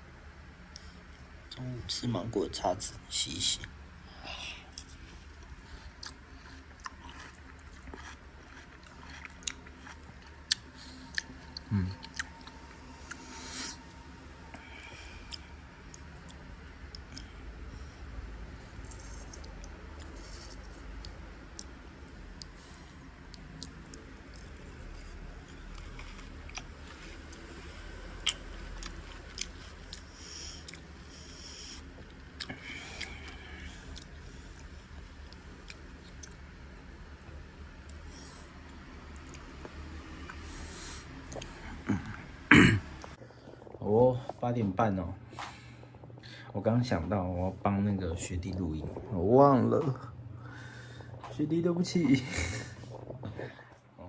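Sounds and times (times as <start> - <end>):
person chewing and biting food: 4.7 - 17.8, 18.7 - 36.5.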